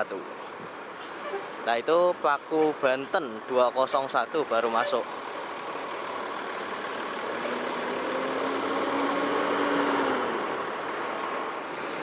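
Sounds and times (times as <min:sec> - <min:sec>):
bus diesel engine humming: 0:00.0 - 0:12.0.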